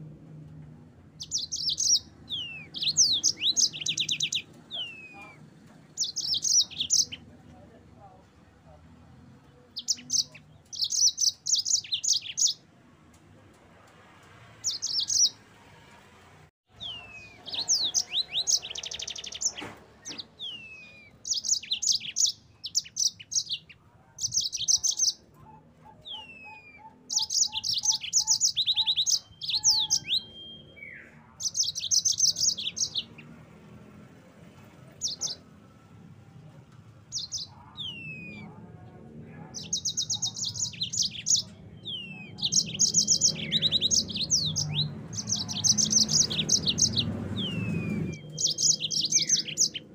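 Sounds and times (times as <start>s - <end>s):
canary singing trills and whistles: 1.2s - 7.3s, 9.7s - 12.6s, 14.6s - 15.4s, 16.7s - 33.4s, 35.0s - 35.5s, 37.1s - 49.9s.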